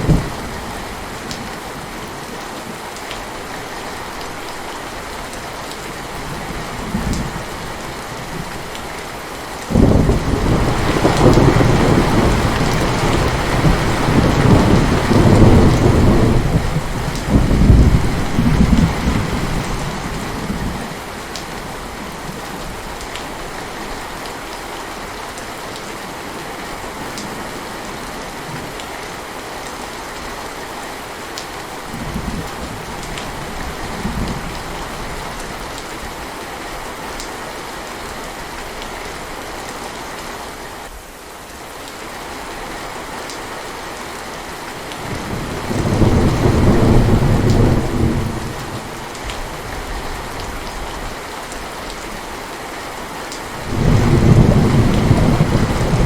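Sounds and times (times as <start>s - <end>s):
thunder rumbling: 0.0s - 0.8s, 9.7s - 20.9s, 45.0s - 50.4s, 53.6s - 56.0s
heavy rain: 0.0s - 56.0s.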